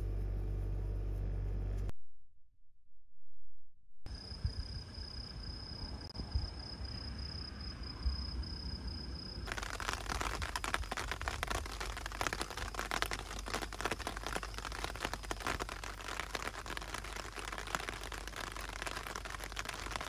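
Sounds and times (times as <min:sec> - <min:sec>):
heavy rain falling: 0:09.5 - 0:20.0.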